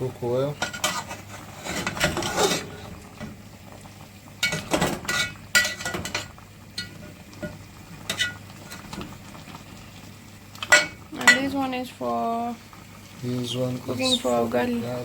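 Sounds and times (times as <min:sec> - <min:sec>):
metal spoon clinking on pot: 0:10.7 - 0:11.5.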